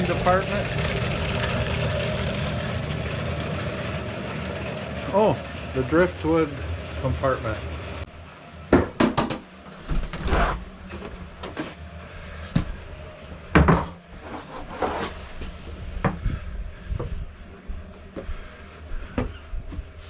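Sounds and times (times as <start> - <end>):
steady low rumble: 0.0 - 8.7, 15.1 - 20.0.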